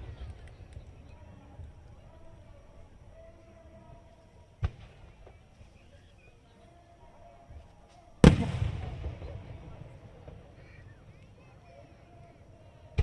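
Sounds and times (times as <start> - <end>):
firework shells bursting: 8.2 - 11.4.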